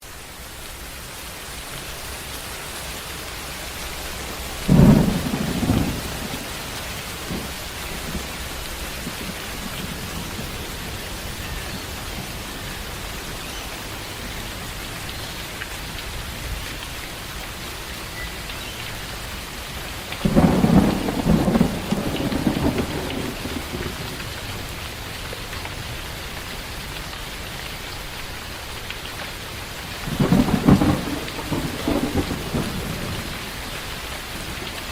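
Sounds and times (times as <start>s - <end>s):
steady rain: 0.0s - 34.9s
rolling thunder: 4.5s - 12.4s, 20.2s - 24.6s, 30.0s - 33.7s
thunder clap: 4.6s - 12.4s, 20.2s - 24.1s, 30.1s - 33.4s.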